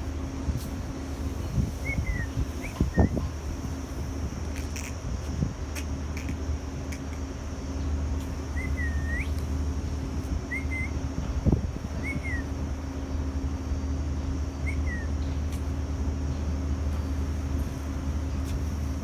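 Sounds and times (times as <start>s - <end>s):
steady low hum: 0.0s - 19.0s
bird whistled calls: 1.8s - 3.2s, 8.5s - 9.5s, 10.5s - 11.0s, 11.9s - 12.6s, 14.6s - 15.2s.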